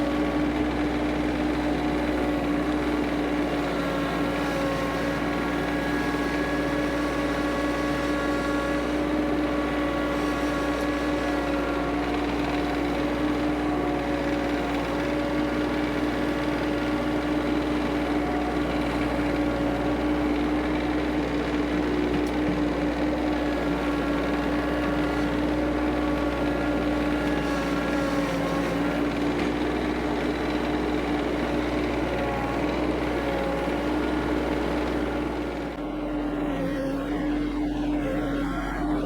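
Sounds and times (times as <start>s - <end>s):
tractor diesel engine running: 0.0s - 39.0s
high engine whine: 32.1s - 39.0s.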